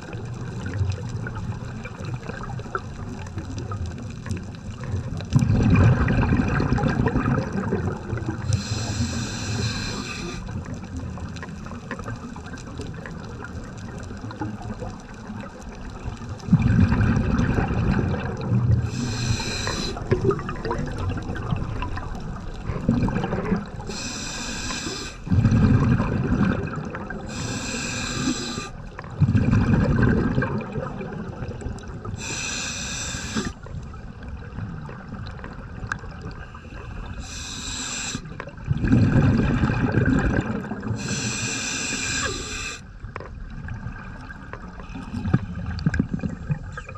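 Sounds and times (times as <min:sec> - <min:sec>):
exhaled bubbles rumbling: 0:00.0 - 0:46.9
regulator hissing inhalation: 0:08.4 - 0:10.5, 0:18.8 - 0:20.2, 0:23.8 - 0:25.3, 0:27.2 - 0:28.8, 0:32.2 - 0:33.6, 0:36.4 - 0:38.3, 0:41.0 - 0:42.8.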